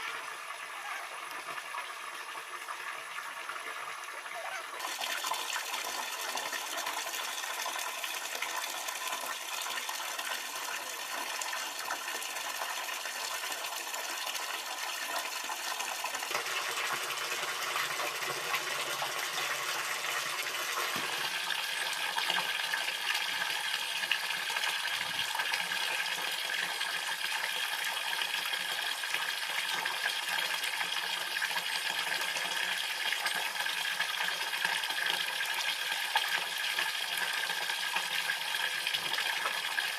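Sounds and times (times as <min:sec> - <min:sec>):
running water splashing: 0:03.9 - 0:27.5.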